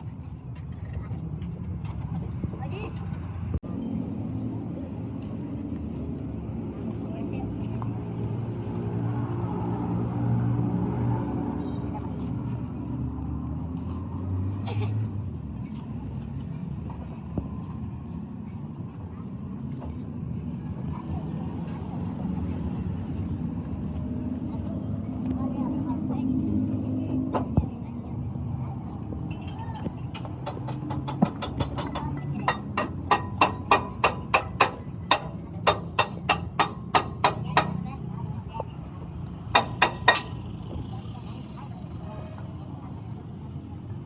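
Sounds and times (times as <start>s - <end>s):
vehicle engine rumbling: 0.0s - 44.0s
hammer striking metal: 30.2s - 37.8s, 39.5s - 40.4s.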